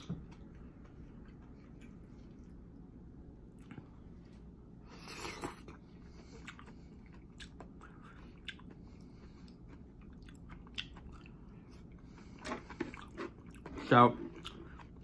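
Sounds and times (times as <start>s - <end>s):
close chewing: 5.0s - 15.0s.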